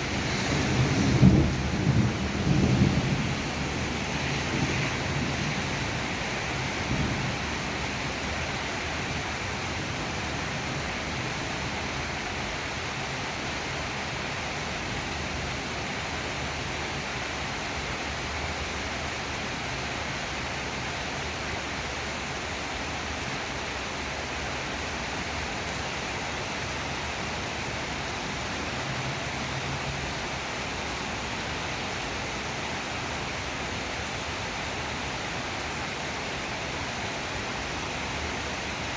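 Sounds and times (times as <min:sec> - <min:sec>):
thunder rumbling: 0:00.0 - 0:07.5
heavy rain pouring: 0:00.0 - 0:38.9.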